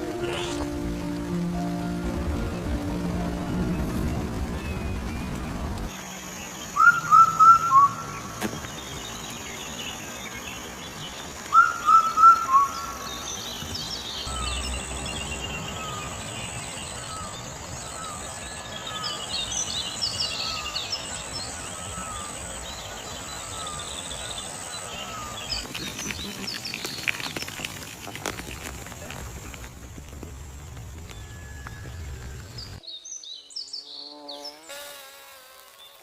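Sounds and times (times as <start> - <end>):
background music: 0.0 - 5.9
high twittering of birds: 3.7 - 27.8
bird chirping phrases: 32.6 - 34.6.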